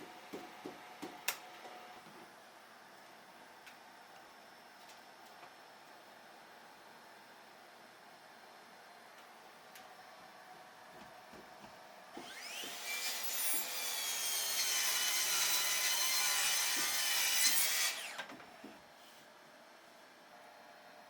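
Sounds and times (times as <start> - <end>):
circular saw whining: 12.2 - 18.2
saw cutting through wood: 12.2 - 18.3.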